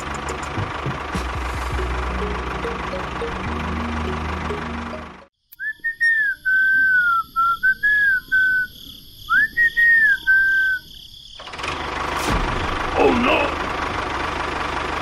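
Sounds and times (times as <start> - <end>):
person whistling a tune: 5.6 - 8.7, 9.3 - 10.9.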